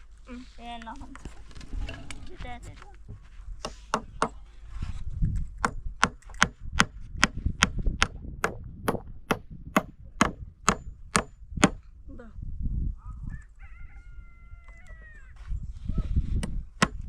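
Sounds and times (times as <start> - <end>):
hand tool striking wood: 3.1 - 4.4, 5.6 - 11.8, 16.4 - 17.0.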